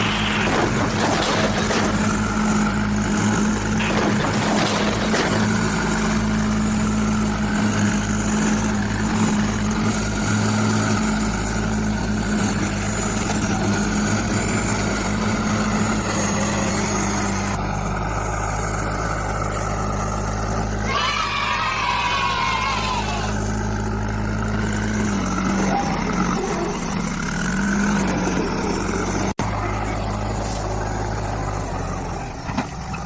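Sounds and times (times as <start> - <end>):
heavy vehicle engine running: 0.0 - 33.0.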